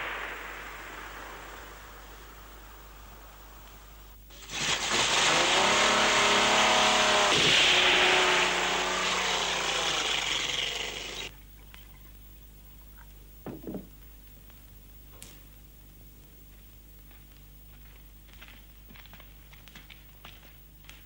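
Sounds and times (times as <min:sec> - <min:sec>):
car engine revving: 0:04.3 - 0:11.3.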